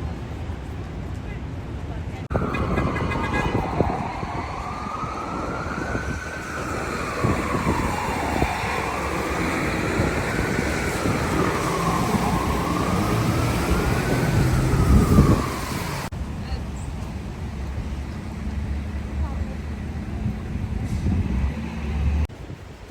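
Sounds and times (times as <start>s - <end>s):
city street traffic rumble: 0.0s - 22.9s
emergency siren wailing: 2.3s - 16.2s.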